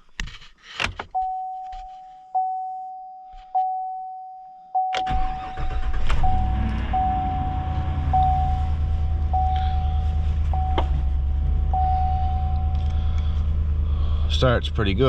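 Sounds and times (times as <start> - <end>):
warning chime tone: 1.2 - 12.8
truck engine idling: 5.1 - 15.0.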